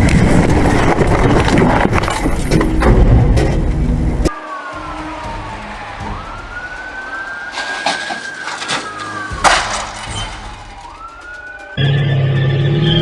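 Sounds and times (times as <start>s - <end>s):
road noise: 0.0s - 13.0s
emergency siren wailing: 3.9s - 13.0s
loud short burst of noise: 4.4s - 12.1s.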